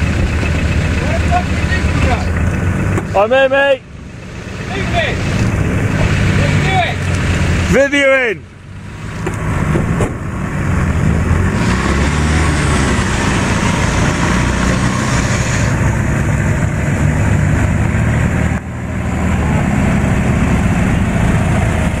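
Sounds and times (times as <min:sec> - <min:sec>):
off-road engine running under load: 0:00.0 - 0:22.0.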